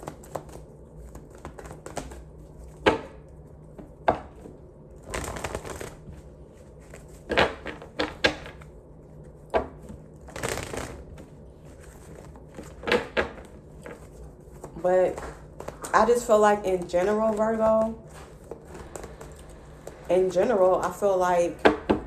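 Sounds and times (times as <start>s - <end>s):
cards tapping and clacking: 0.0s - 2.2s, 11.8s - 16.2s, 16.8s - 20.1s
cards shuffling swishes: 9.8s - 20.1s.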